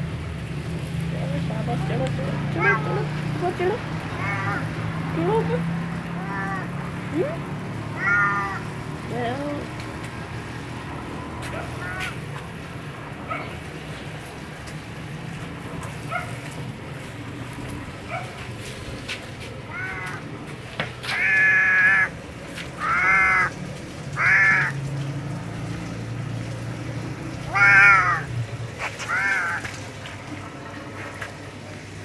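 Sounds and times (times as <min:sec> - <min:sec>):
cat meowing: 0:02.6 - 0:03.1, 0:04.1 - 0:04.7, 0:06.2 - 0:08.7, 0:11.8 - 0:12.2, 0:19.7 - 0:20.2, 0:21.1 - 0:22.1, 0:22.8 - 0:23.6, 0:24.2 - 0:24.8, 0:27.4 - 0:28.3, 0:29.0 - 0:29.6.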